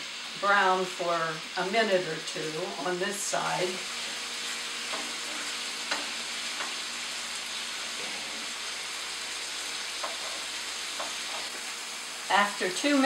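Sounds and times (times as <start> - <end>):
chicken sizzling in hot oil: 0.0 - 13.0
spatula tapping and scraping a pan: 4.9 - 6.8, 10.0 - 11.6.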